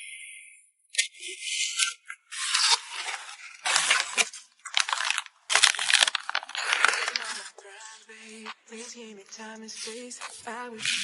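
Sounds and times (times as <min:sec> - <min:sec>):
plastic packaging crinkling: 0:02.3 - 0:08.6.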